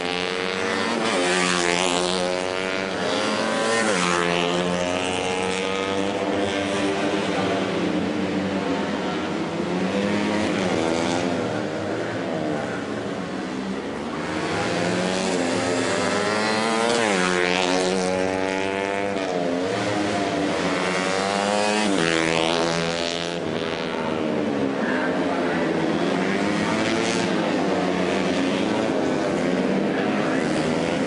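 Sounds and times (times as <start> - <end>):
racing motorcycle engines revving: 0.0 - 31.0.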